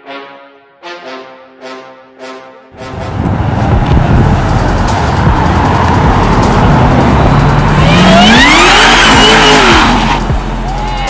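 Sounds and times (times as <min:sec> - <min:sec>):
car engine revving and accelerating: 0:02.9 - 0:11.0.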